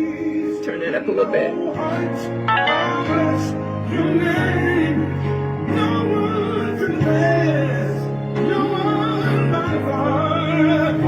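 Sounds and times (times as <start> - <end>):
person singing: 0.0 - 11.0
long held chords: 2.5 - 4.0.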